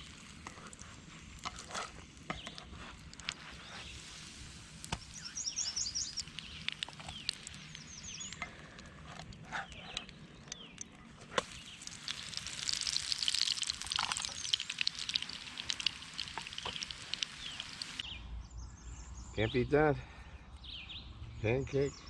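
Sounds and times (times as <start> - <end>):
songbirds chirping and singing: 4.9 - 12.0, 14.3 - 22.0.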